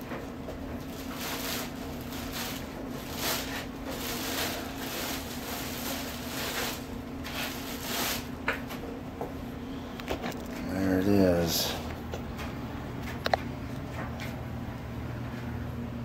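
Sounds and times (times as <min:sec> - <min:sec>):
steady low hum: 0:00.0 - 0:16.0
plastic and foam packaging rustling: 0:00.5 - 0:08.8.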